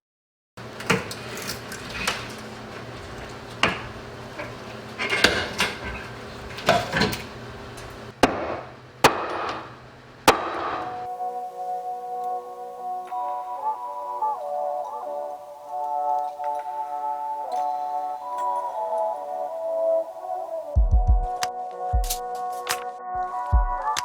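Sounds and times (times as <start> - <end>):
hammering on wood: 8.1 - 11.1
sharp cracks: 8.1 - 11.1.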